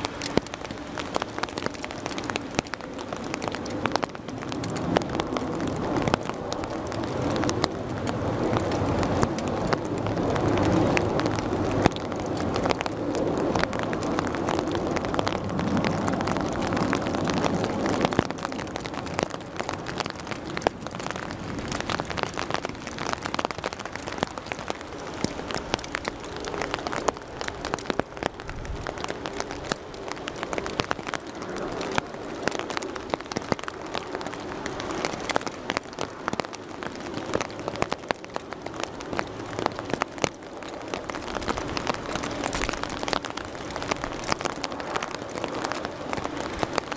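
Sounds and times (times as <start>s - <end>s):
jet airliner engines rumbling: 0.0s - 46.9s
rain pattering: 0.0s - 46.9s.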